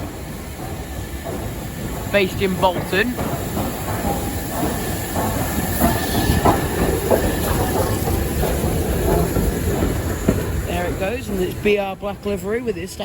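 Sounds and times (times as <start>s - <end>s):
train rumbling: 0.0s - 13.0s
train wheels clattering over rails: 0.0s - 13.0s.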